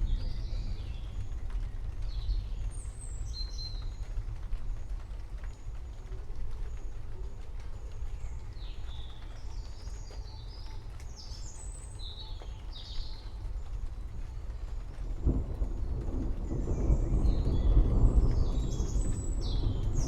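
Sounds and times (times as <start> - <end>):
thunder rumbling: 0.0 - 5.1, 13.4 - 20.0.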